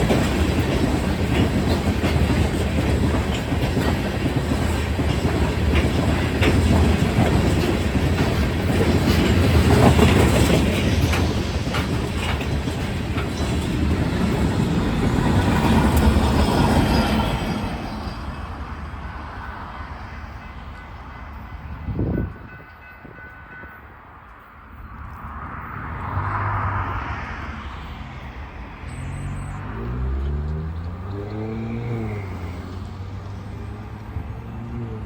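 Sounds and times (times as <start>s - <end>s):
wheels clacking over rail joints: 0.0s - 25.5s
train rumble: 0.0s - 35.0s.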